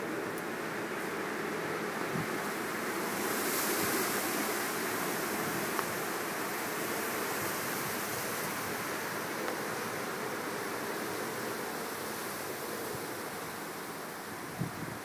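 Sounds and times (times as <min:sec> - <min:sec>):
strong wind blowing in gusts: 0:00.0 - 0:15.0.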